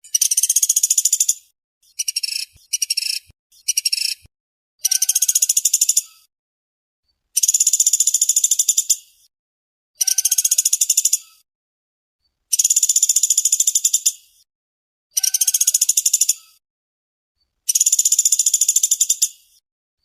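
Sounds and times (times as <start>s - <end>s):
woodpecker rattling calls: 0.0s - 4.2s, 4.8s - 6.3s, 7.4s - 9.0s, 10.0s - 11.4s, 12.5s - 14.2s, 15.1s - 16.6s, 17.7s - 19.4s.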